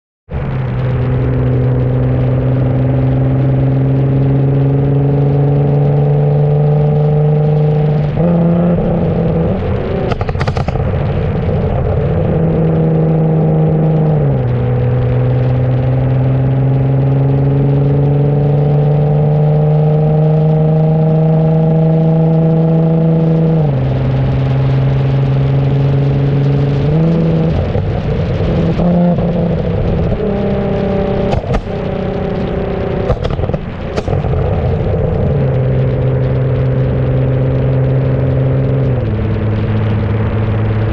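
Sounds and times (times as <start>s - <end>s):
car engine accelerating: 0.3s - 40.9s
sharp exhaust pops: 7.7s - 11.8s, 26.4s - 40.9s.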